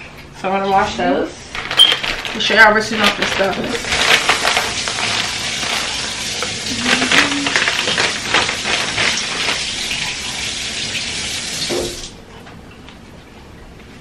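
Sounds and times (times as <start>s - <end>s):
kitchen tap running: 0.9s - 12.2s
water splashing on vegetables: 1.6s - 12.1s.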